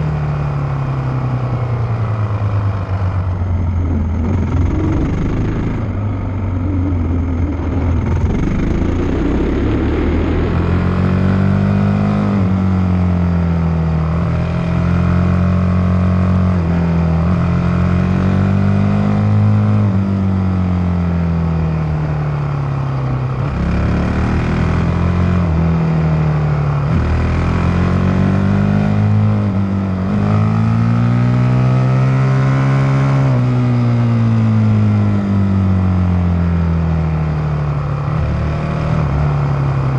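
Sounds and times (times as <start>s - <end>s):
motocross bike engine revving: 3.7s - 12.6s.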